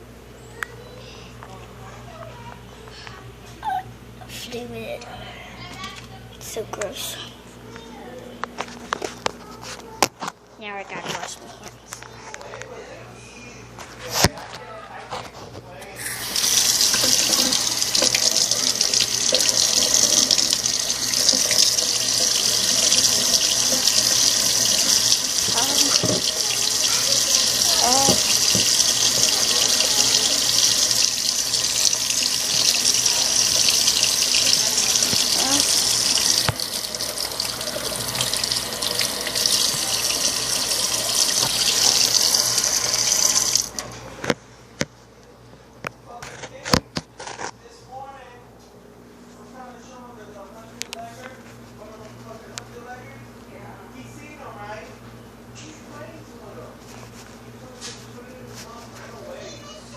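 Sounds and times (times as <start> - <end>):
tap running into sink: 16.0 - 43.8.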